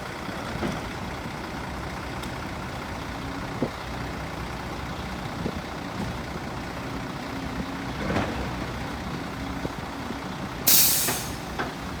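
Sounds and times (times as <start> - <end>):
heavy diesel machinery running: 0.0 - 12.0
loud burst of hissing: 10.7 - 11.5.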